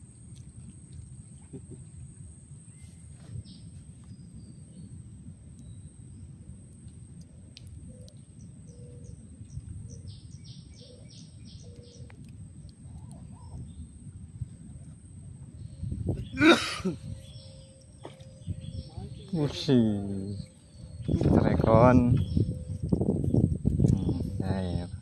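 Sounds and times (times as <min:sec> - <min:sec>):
low background rumble: 0:00.0 - 0:25.0
small bird chirping: 0:07.9 - 0:13.9, 0:15.6 - 0:25.0.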